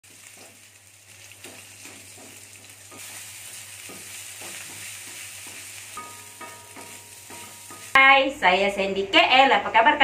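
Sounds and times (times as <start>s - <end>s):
wooden spatula scraping a wok: 0.0s - 8.0s
food sizzling in a wok: 0.0s - 8.9s.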